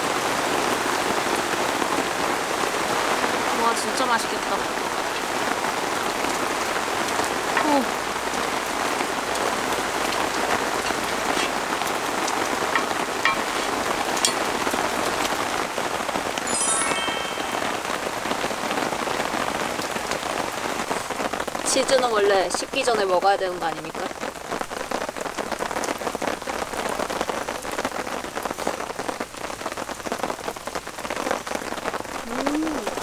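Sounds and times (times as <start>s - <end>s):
heavy rain on a tarp: 0.0s - 33.0s
sharp raindrop ticks: 6.2s - 15.7s
metallic ringing clink: 13.2s - 13.6s.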